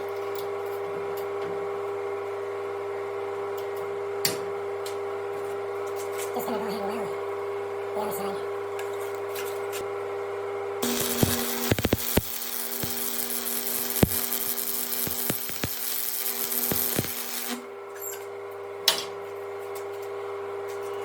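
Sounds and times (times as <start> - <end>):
sharp welding pops: 10.8 - 17.6
steady hum: 10.8 - 17.6
welding arc crackling and sizzling: 10.8 - 17.7.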